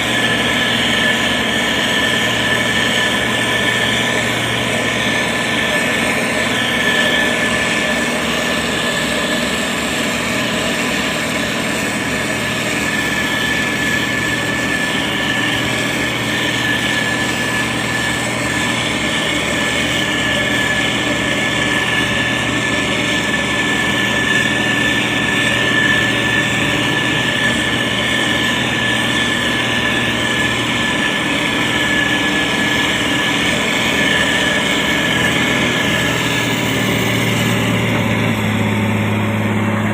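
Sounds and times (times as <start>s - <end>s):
diesel engine running: 0.0s - 39.9s
high whine: 0.0s - 39.9s.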